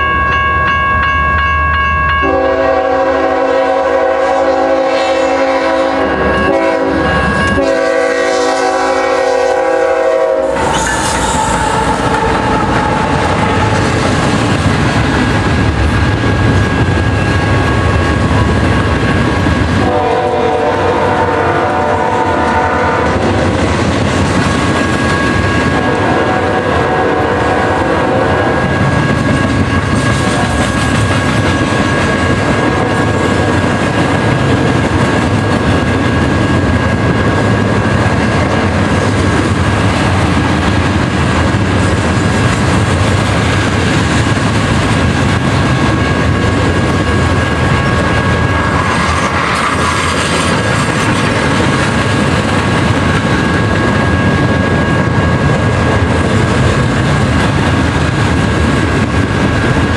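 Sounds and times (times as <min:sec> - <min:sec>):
freight train wheels clattering: 0:00.0 - 0:59.9
train horn blast: 0:02.2 - 0:14.0, 0:19.8 - 0:23.3, 0:25.7 - 0:28.8, 0:32.6 - 0:33.2.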